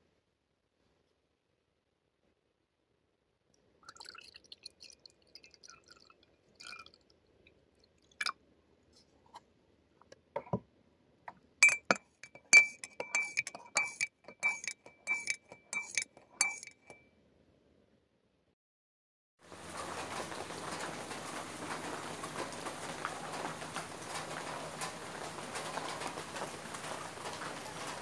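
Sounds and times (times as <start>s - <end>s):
sharp clinks on glass: 11.6s - 17.0s.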